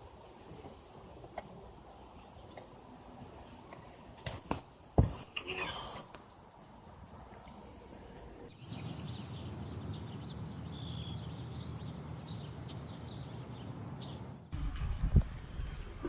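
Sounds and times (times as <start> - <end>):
bird chirps: 8.5 - 14.5
high-pitched insect drone: 8.6 - 14.5.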